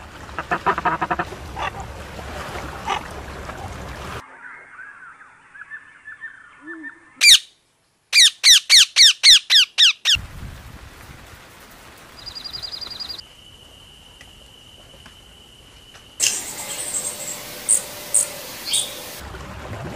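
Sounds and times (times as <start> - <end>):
bird calls: 4.2 - 7.5, 8.1 - 10.2, 12.2 - 13.2, 16.2 - 19.2.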